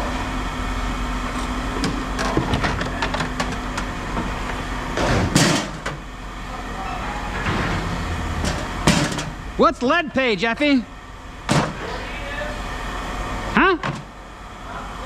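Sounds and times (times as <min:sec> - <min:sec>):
steady low hum: 0:00.0 - 0:15.0
metal rattle or scrape: 0:07.4 - 0:09.4.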